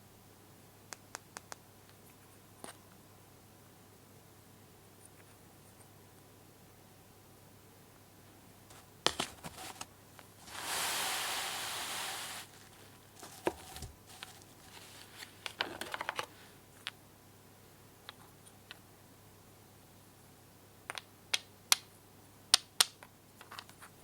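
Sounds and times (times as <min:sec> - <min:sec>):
hissing rustle: 0:10.4 - 0:15.4.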